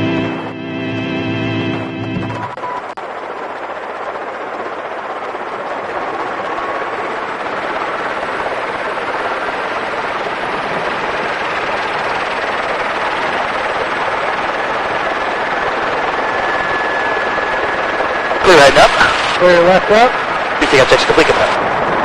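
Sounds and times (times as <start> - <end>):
helicopter running: 0.0 - 22.0.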